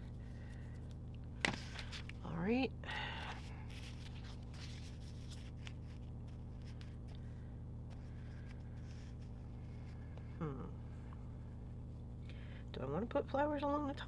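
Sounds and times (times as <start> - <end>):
steady low hum: 0.0 - 14.0
paper and stickers rustling: 1.4 - 2.4, 3.2 - 7.2.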